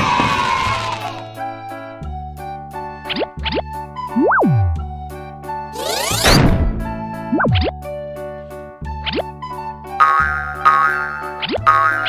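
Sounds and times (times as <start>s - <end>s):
rising cartoon sound effects: 5.8s - 6.5s
upbeat children's music: 6.8s - 12.0s.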